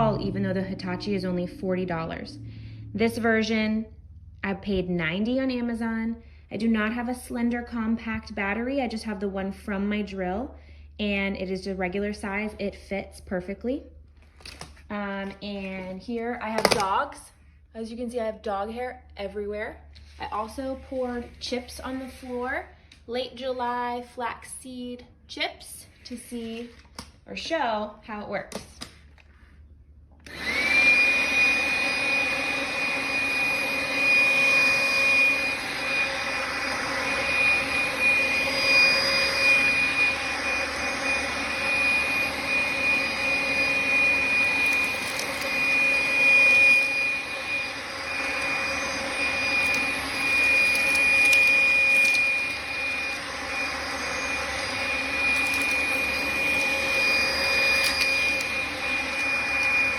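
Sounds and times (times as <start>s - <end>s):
cordless vacuum whining: 0.0s - 3.6s, 30.2s - 59.9s.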